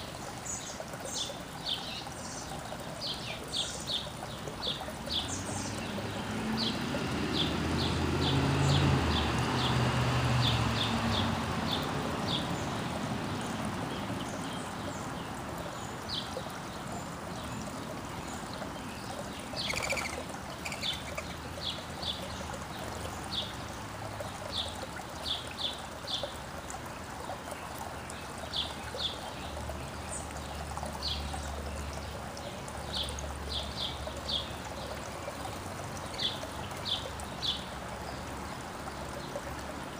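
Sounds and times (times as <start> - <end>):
outdoor background hiss: 0.0 - 39.9
songbirds chirping: 0.0 - 39.9.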